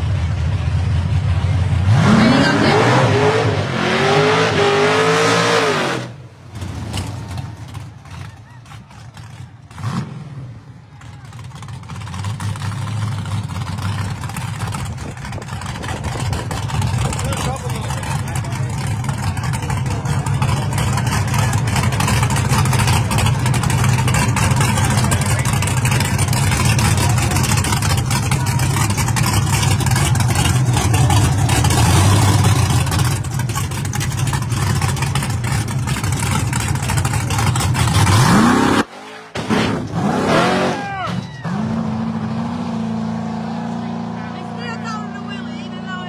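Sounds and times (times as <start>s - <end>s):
steady engine drone: 0.0s - 38.9s
drag car engine at high revs: 0.9s - 46.0s
engine revving: 1.7s - 7.9s, 9.1s - 10.7s, 11.4s - 46.0s.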